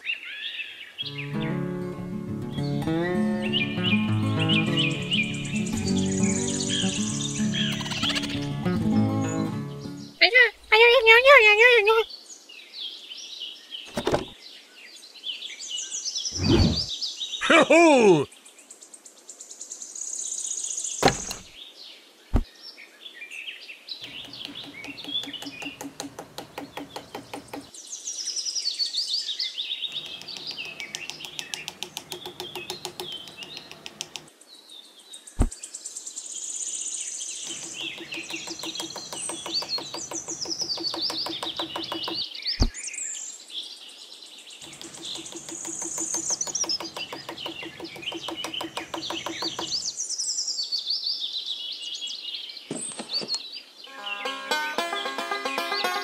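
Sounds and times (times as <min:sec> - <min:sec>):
small birds chirping: 0:02.5 - 0:54.5
sharp clicks: 0:07.5 - 0:08.4, 0:24.0 - 0:27.7, 0:29.9 - 0:34.3, 0:37.5 - 0:42.2, 0:44.6 - 0:49.9
rattling mechanical buzz: 0:37.5 - 0:42.2, 0:44.6 - 0:49.9.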